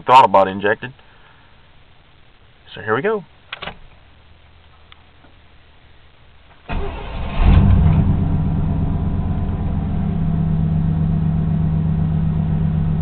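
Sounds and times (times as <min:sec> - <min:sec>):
car engine revving and idling: 0:06.8 - 0:13.0.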